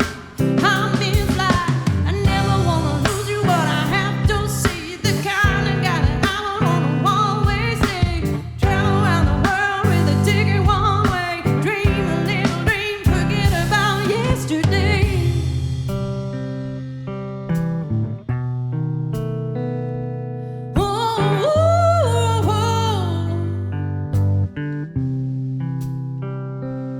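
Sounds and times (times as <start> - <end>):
live pop band playing: 0.0 - 16.7
person singing: 0.5 - 15.6, 20.8 - 23.7.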